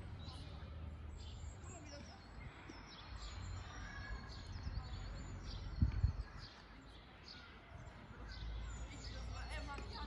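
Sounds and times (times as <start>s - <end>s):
songbirds chirping: 0.0s - 10.0s.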